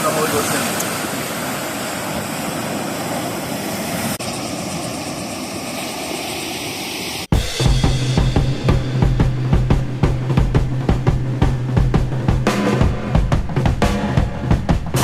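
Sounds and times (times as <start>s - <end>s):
ocean surf breaking: 0.0s - 4.8s
music with drums: 7.3s - 15.0s.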